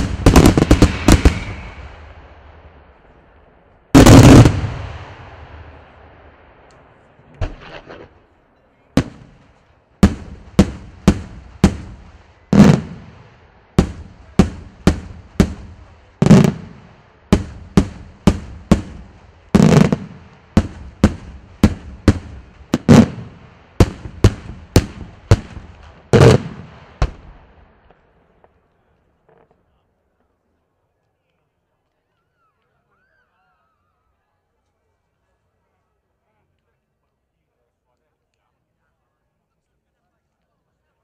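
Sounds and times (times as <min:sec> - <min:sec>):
heavy fireworks booms: 0:00.0 - 0:03.1, 0:03.9 - 0:06.4, 0:09.0 - 0:27.8
fireworks bangs: 0:00.0 - 0:08.3, 0:08.9 - 0:28.5.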